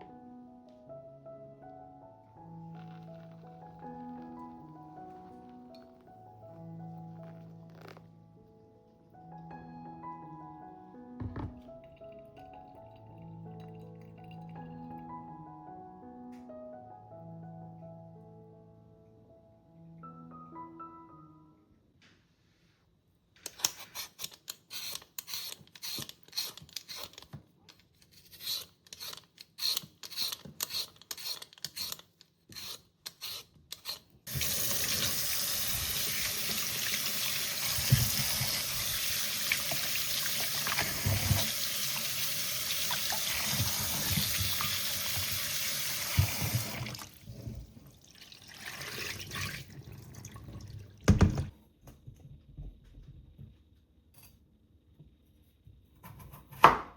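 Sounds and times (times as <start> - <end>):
kitchen tap running into sink: 34.3 - 51.5.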